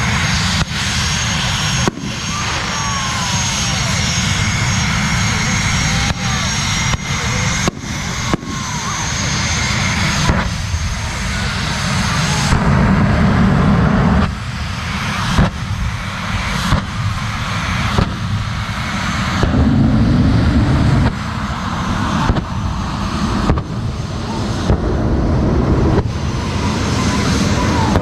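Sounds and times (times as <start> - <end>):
jet engines running loud: 0.0 - 28.0
sharp bangs: 19.3 - 23.9.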